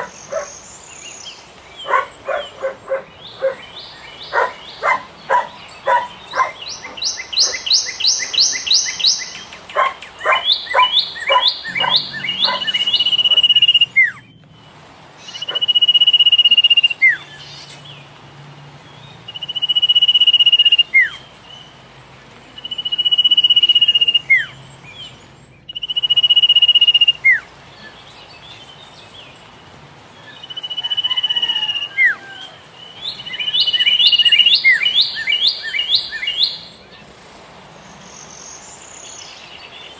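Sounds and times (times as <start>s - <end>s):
bird chirping: 0.0s - 18.1s, 22.5s - 29.5s, 30.2s - 37.1s
bird whistles: 6.4s - 9.5s, 10.2s - 14.3s, 15.3s - 17.2s, 25.7s - 27.4s, 30.4s - 32.4s, 33.1s - 36.8s.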